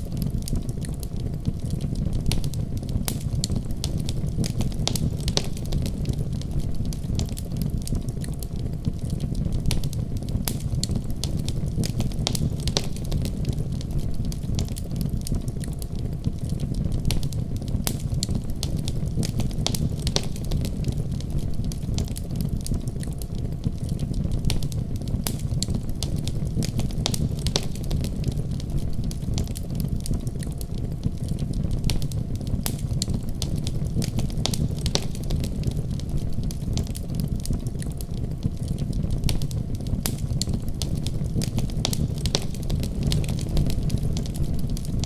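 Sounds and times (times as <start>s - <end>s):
wood fire crackling: 0.0s - 45.0s.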